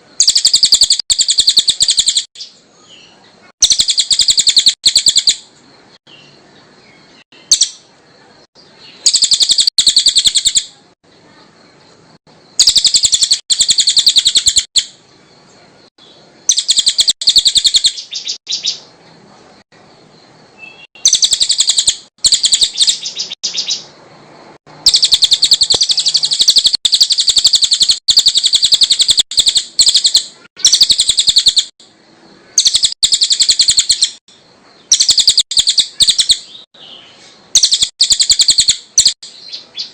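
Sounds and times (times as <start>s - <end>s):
songbird rapid high chattering: 0.0s - 2.5s, 3.3s - 5.5s, 7.2s - 7.9s, 8.7s - 10.9s, 12.4s - 15.0s, 16.5s - 18.9s, 20.7s - 24.0s, 24.6s - 39.9s.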